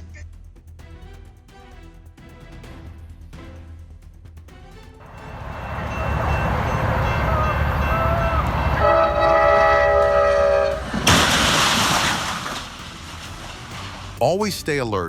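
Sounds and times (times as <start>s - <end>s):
train horn blowing: 5.0s - 11.0s
train rumbling past: 5.0s - 14.6s.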